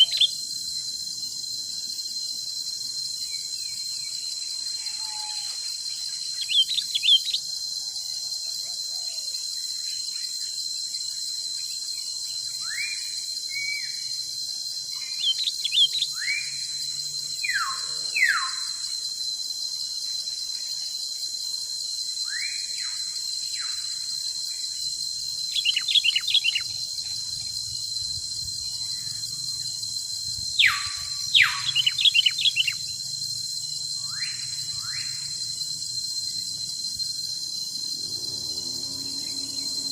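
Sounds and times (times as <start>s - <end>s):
birds chirping and whistling: 0.0s - 0.4s, 6.2s - 7.4s, 25.5s - 33.0s
high-pitched insect drone: 0.0s - 39.9s.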